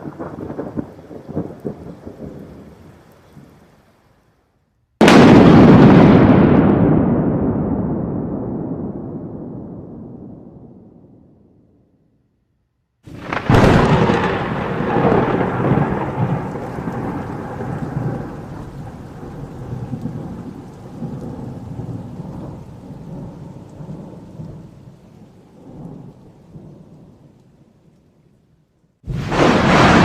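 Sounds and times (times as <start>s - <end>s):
thunderclap rolling rumble: 0.0s - 2.8s, 5.0s - 11.7s, 13.1s - 27.4s, 29.1s - 30.0s.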